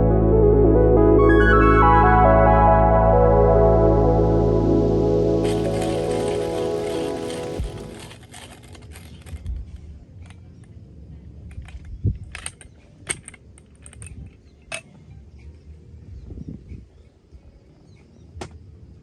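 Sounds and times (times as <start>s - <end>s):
background music: 0.0s - 8.2s
small hard objects clinking: 5.4s - 9.8s.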